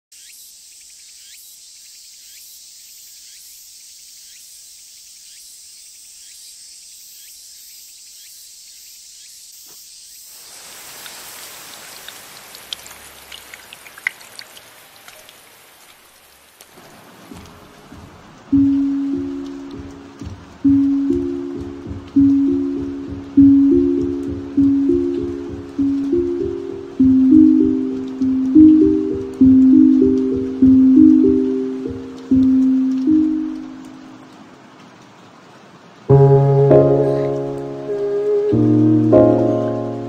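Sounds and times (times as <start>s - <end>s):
steady rain: 0.1s - 40.0s
heavy raindrops splashing: 10.3s - 40.0s.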